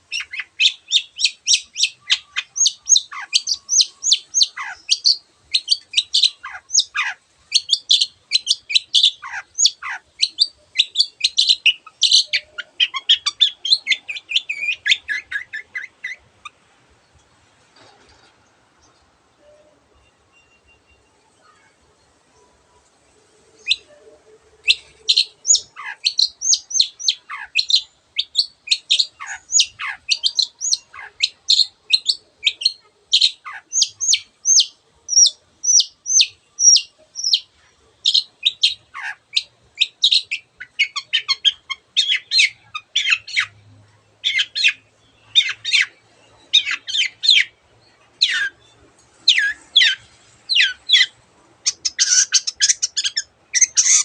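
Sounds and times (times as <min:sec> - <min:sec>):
bird song with sharp notes: 0:00.0 - 0:54.0.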